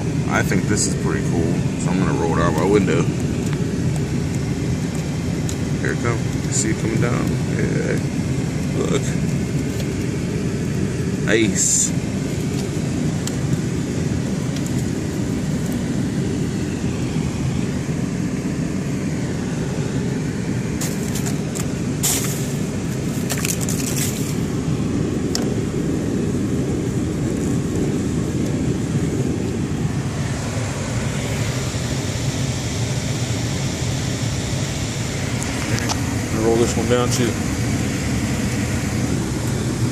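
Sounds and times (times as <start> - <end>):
defroster blower rush of air: 0.0 - 39.9
sharp crackles and clicks: 0.8 - 10.8, 11.7 - 13.8, 14.4 - 15.9, 20.8 - 24.5.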